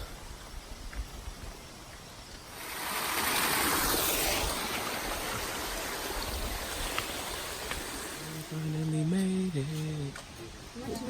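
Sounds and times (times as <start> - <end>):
waterfall rushing water: 2.5 - 11.0.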